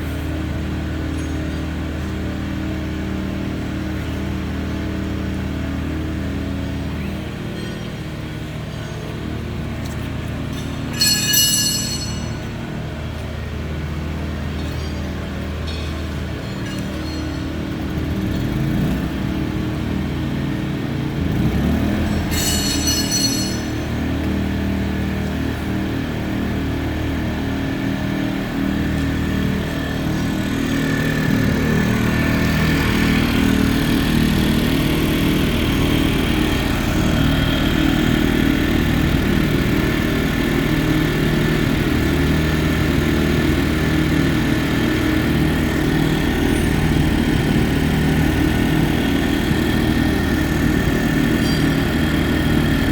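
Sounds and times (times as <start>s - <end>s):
generator engine running: 0.0s - 52.9s
brief high ringing: 10.9s - 12.7s, 22.2s - 24.1s.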